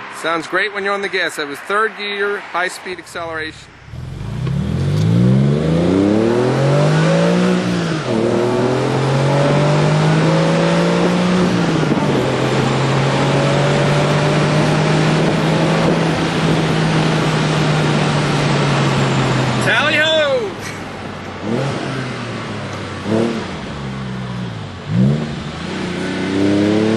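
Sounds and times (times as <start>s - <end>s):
sports car accelerating hard: 2.4s - 20.2s, 21.0s - 26.9s.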